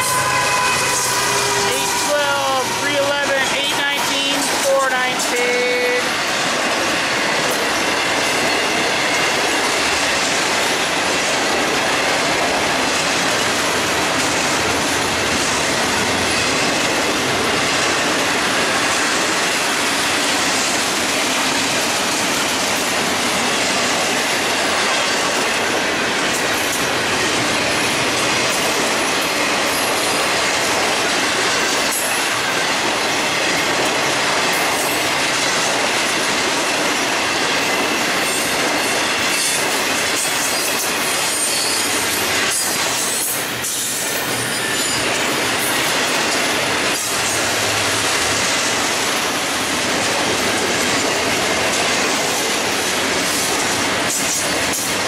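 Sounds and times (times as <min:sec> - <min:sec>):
steel wheels rolling on rail: 0:00.0 - 0:55.0.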